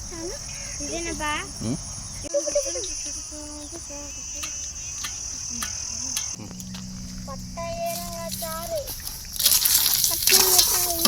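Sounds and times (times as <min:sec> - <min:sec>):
faint voices: 0:00.0 - 0:11.0
insect trill: 0:00.0 - 0:11.0
low steady hum: 0:00.0 - 0:11.0
light clicks: 0:04.3 - 0:06.9.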